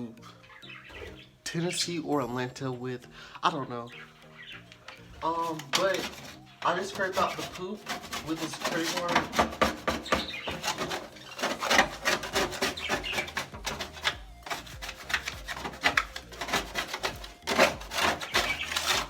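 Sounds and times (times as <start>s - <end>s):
plastic card scraping cage bottom: 5.2s - 19.0s.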